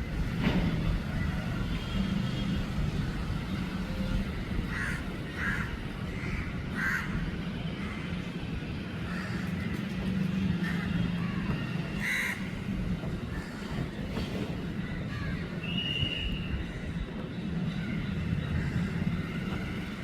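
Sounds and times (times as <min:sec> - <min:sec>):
crow cawing: 0:04.7 - 0:07.1, 0:12.0 - 0:12.4.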